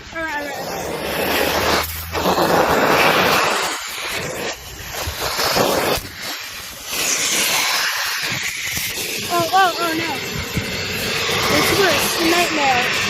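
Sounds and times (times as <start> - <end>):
vacuum hose sucking air: 0.0 - 13.0.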